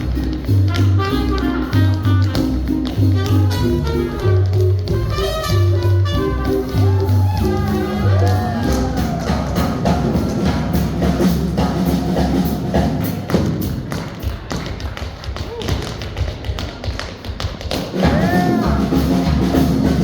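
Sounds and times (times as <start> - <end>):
swing jazz band playing: 0.0 - 13.9, 17.9 - 20.0
tap shoes striking floor: 0.2 - 6.4, 13.3 - 18.0.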